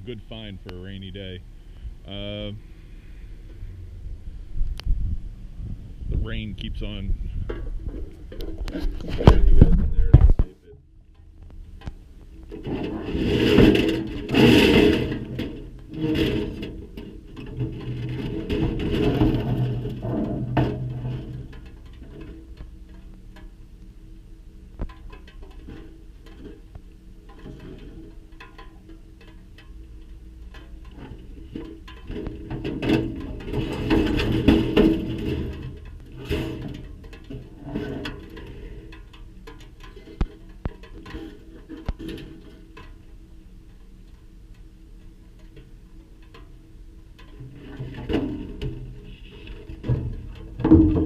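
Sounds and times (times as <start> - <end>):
scrap scraping and sliding: 7.8 - 10.5, 12.5 - 22.4, 30.9 - 39.0
metal scrap clattering: 12.4 - 23.5, 24.8 - 43.1, 45.4 - 51.0.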